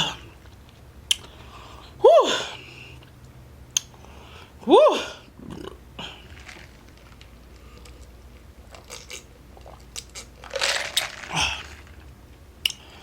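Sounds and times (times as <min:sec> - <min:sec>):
person drinking and swallowing: 0:05.4 - 0:06.8, 0:07.6 - 0:12.1.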